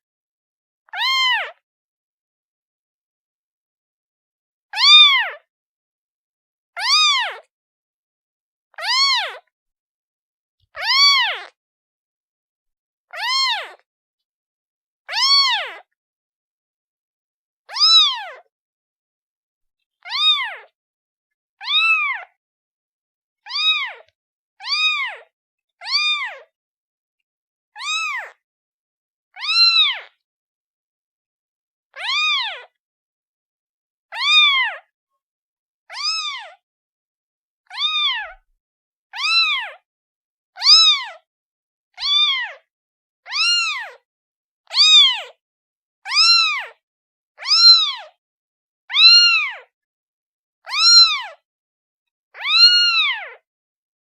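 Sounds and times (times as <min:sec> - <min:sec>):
kitten meowing: 0:00.9 - 0:01.6, 0:04.8 - 0:05.4, 0:06.8 - 0:07.4, 0:08.8 - 0:09.4, 0:10.8 - 0:11.6, 0:13.2 - 0:13.8, 0:15.1 - 0:15.8, 0:17.7 - 0:18.4, 0:20.1 - 0:20.7, 0:21.6 - 0:22.3, 0:23.5 - 0:25.2, 0:25.9 - 0:26.4, 0:27.8 - 0:28.4, 0:29.4 - 0:30.1, 0:32.0 - 0:32.7, 0:34.1 - 0:34.9, 0:35.9 - 0:36.5, 0:37.7 - 0:38.4, 0:39.2 - 0:39.8, 0:40.6 - 0:41.1, 0:42.0 - 0:42.6, 0:43.3 - 0:44.0, 0:44.7 - 0:45.3, 0:46.1 - 0:46.8, 0:47.4 - 0:48.1, 0:48.9 - 0:49.7, 0:50.6 - 0:51.4, 0:52.4 - 0:53.4.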